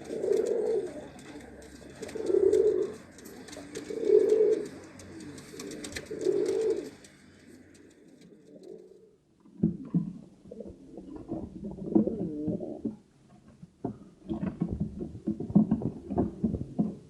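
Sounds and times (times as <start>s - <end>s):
pigeon cooing: 0.0s - 9.2s, 10.5s - 12.9s.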